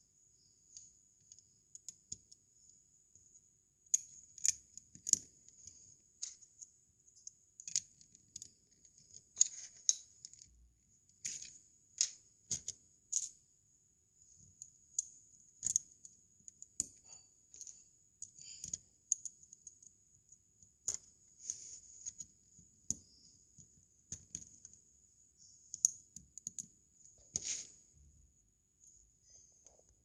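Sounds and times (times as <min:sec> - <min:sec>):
plastic bricks clicking together: 0:15.0 - 0:19.8.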